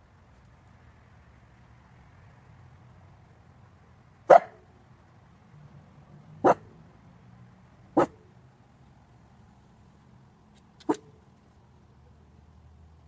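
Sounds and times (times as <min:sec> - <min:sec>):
dog barking: 0:04.3 - 0:04.6, 0:06.4 - 0:06.7, 0:08.0 - 0:08.2.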